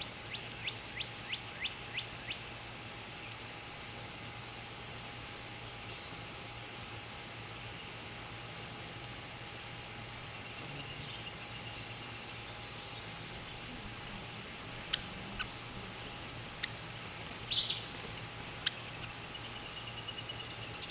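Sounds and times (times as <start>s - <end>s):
steady hiss and low hum: 0.0s - 20.9s
high bird chirps: 17.5s - 18.0s.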